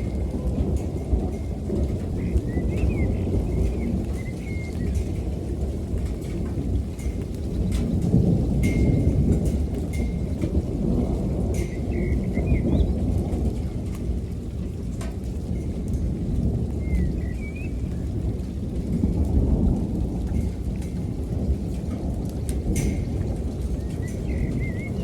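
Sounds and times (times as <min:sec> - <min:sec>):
raindrops ticking: 0:00.0 - 0:25.0
rolling thunder: 0:00.0 - 0:25.0
steady rain: 0:00.0 - 0:25.0
bird chirping: 0:02.2 - 0:05.0, 0:16.8 - 0:17.8, 0:23.8 - 0:25.0.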